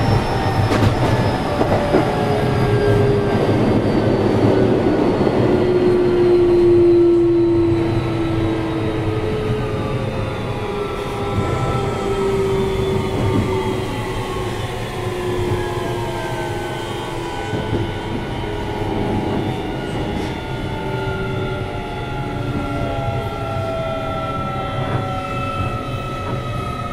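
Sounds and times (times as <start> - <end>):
train wheels rumbling on rail: 0.0 - 26.9.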